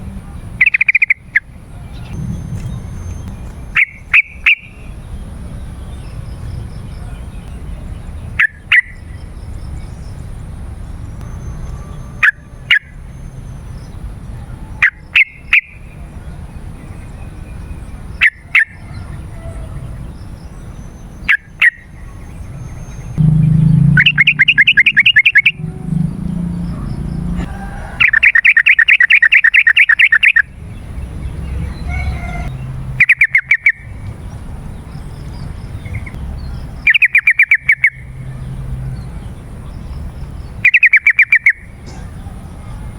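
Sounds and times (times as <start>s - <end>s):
bird calling in loud bursts: 23.2s - 30.4s.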